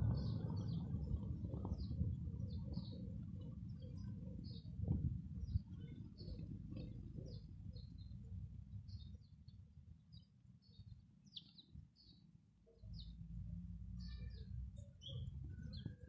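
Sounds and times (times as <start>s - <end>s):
low rumble: 0.0s - 2.9s
small birds chirping: 0.0s - 16.0s.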